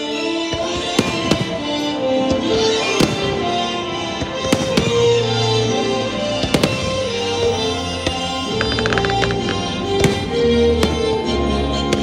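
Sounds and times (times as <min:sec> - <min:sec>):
firework shells bursting: 0:08.0 - 0:11.1.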